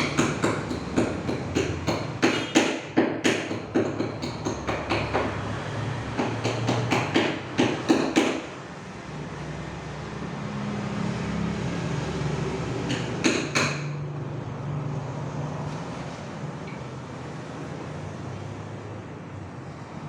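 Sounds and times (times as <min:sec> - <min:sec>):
hammer striking nails into wood: 0:00.0 - 0:05.4, 0:06.2 - 0:08.6, 0:12.9 - 0:14.0.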